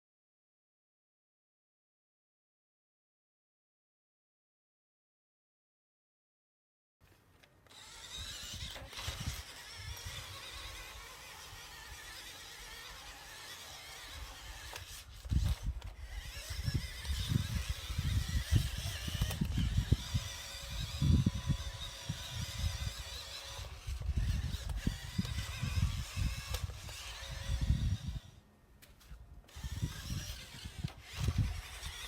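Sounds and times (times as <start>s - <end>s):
small electric motor whining: 7.6s - 32.0s.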